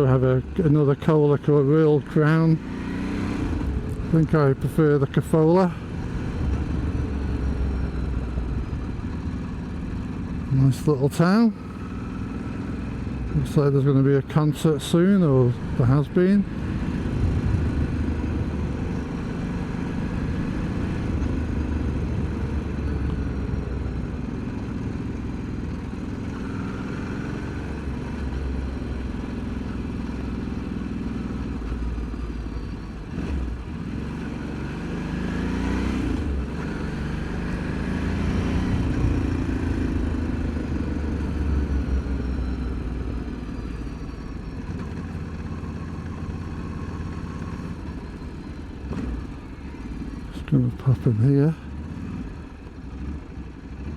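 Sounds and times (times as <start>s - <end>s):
motorcycle engine running: 2.2s - 35.4s, 36.2s - 53.9s.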